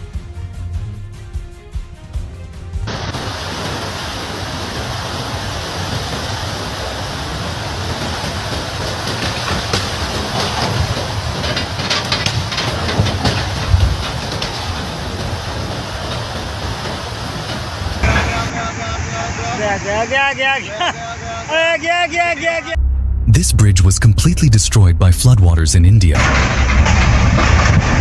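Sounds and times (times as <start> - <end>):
floodwater rushing: 2.9 - 23.4
knocks and cracks: 5.9 - 18.5.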